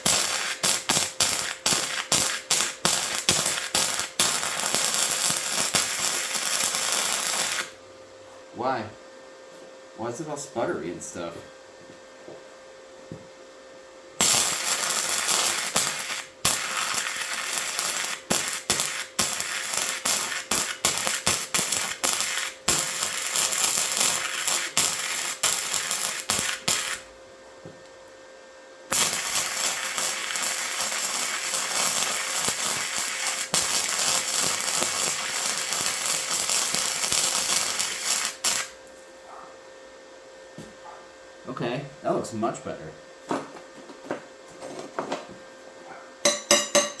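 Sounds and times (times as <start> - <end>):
welding arc crackling: 0.0 - 7.8, 14.2 - 27.1, 28.9 - 39.0.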